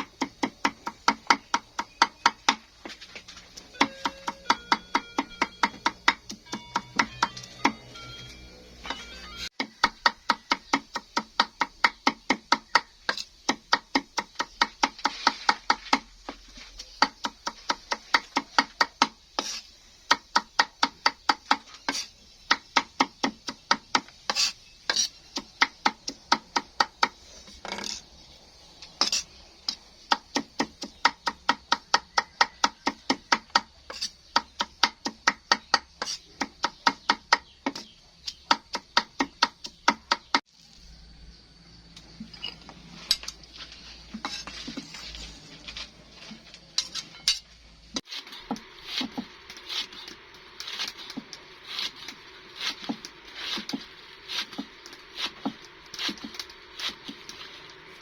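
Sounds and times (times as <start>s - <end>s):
knife chopping on cutting board: 48.0s - 57.7s.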